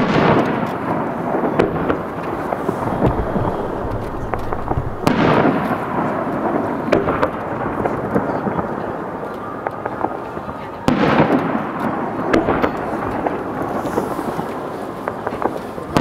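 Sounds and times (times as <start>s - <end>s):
fireworks crackles and pops: 0.0s - 16.0s
fireworks rolling rumble: 0.0s - 16.0s
loud firework boom: 1.6s - 6.3s.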